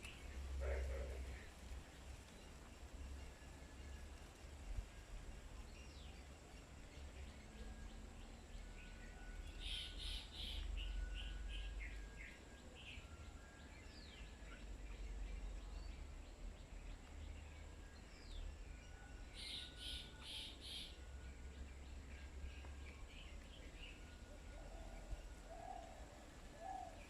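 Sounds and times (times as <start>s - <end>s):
birds chirping and calling: 9.6s - 12.0s.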